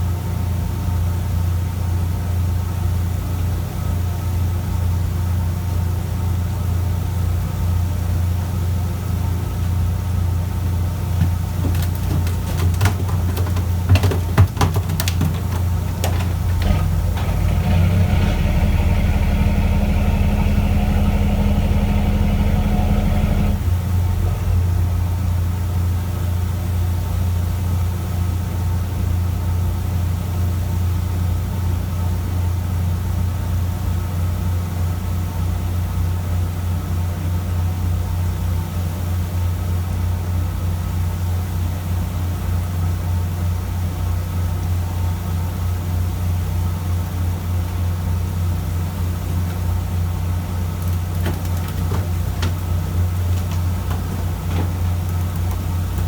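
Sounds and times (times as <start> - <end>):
boat engine humming: 9.9 - 24.4, 47.2 - 56.0
sharp knocks: 11.2 - 17.6.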